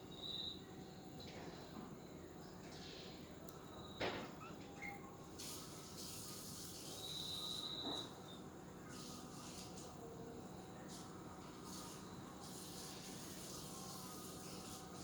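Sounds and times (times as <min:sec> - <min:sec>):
high steady whistle: 0:07.0 - 0:08.1.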